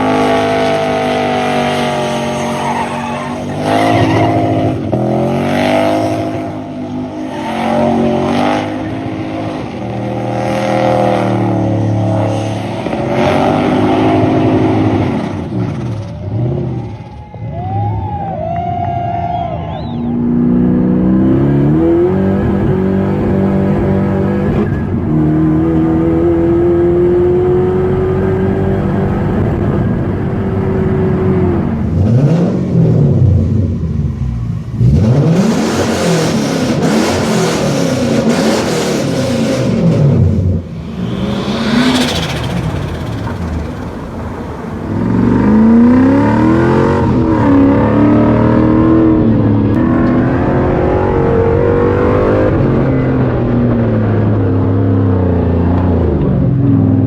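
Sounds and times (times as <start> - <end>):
car engine revving hard: 0.0 - 16.6, 34.8 - 57.0.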